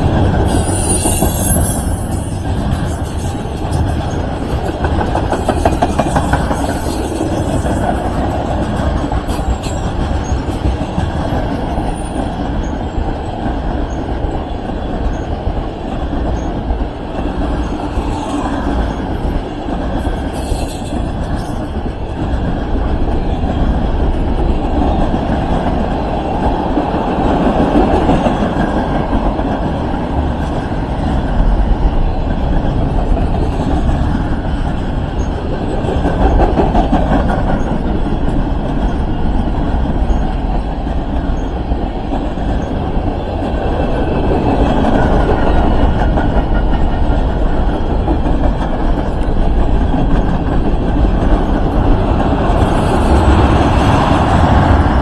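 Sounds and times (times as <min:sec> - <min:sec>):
train rolling along rails: 0:00.0 - 0:55.0.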